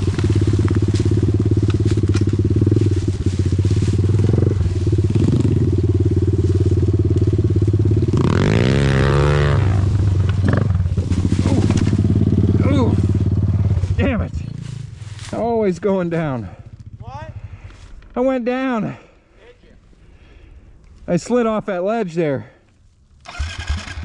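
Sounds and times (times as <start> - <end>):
engine revving: 0.0 - 15.2, 23.2 - 24.0
motorcycle engine idling: 0.0 - 18.0.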